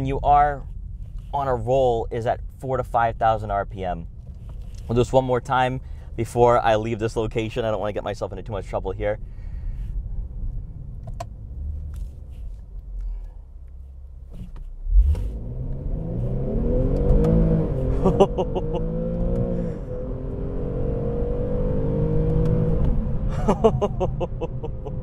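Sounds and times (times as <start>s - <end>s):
car engine revving through gears: 14.8s - 23.3s.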